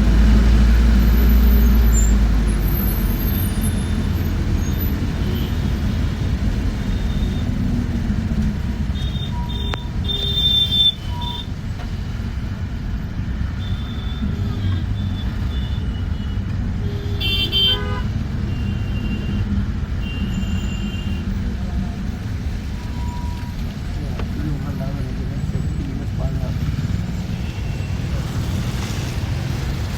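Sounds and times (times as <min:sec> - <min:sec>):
bus engine and road rumble: 0:00.0 - 0:29.9
vehicle horns honking: 0:09.0 - 0:11.5, 0:13.6 - 0:19.4.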